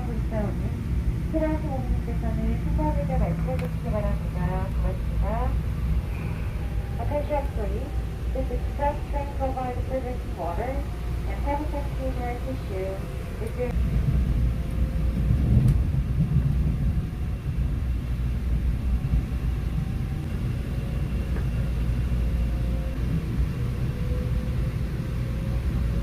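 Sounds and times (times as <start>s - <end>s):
faint whine: 0.0s - 26.0s
train rumble inside carriage: 0.0s - 26.0s.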